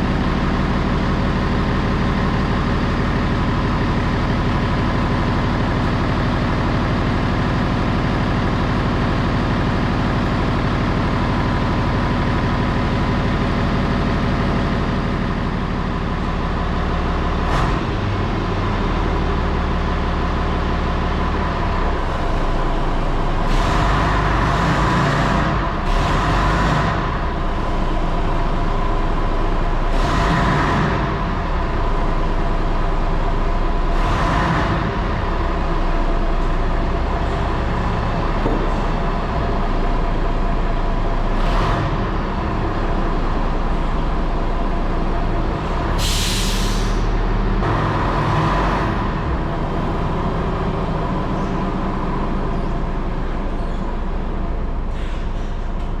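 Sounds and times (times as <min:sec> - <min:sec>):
bus engine running: 0:00.0 - 0:56.0
air brakes hissing: 0:45.9 - 0:47.2, 0:54.8 - 0:55.8.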